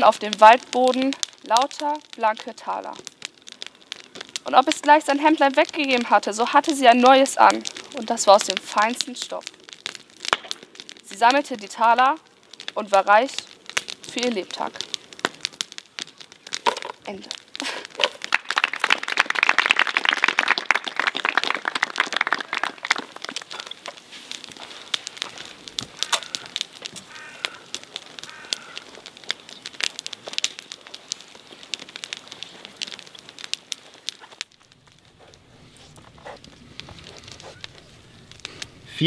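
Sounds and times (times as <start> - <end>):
campfire crackling: 0.0 - 39.0
small group clapping: 18.0 - 23.8.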